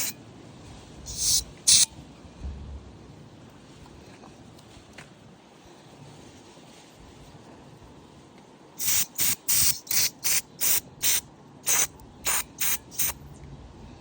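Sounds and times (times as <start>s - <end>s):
aerosol spray hissing bursts: 1.1s - 1.9s, 8.8s - 13.2s.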